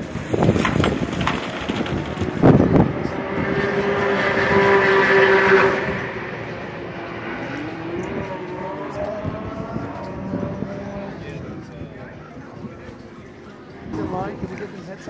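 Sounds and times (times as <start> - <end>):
sports car engine at high revs: 2.6 - 11.2.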